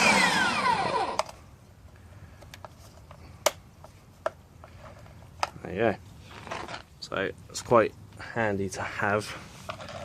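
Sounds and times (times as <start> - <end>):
pressure washer motor winding down: 0.0 - 1.3.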